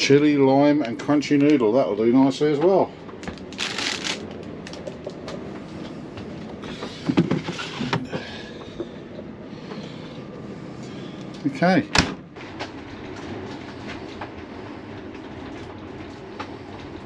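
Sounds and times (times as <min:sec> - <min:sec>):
storm wind buffeting caravan: 0:00.0 - 0:17.0.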